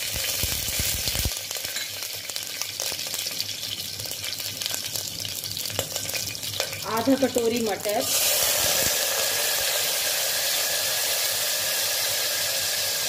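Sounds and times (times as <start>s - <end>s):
small crackles: 0.0s - 5.1s
seeds sizzling in hot oil: 0.0s - 13.0s.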